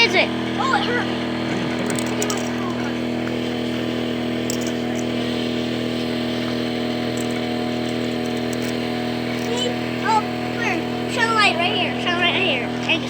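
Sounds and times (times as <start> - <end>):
air compressor humming: 0.0 - 13.0.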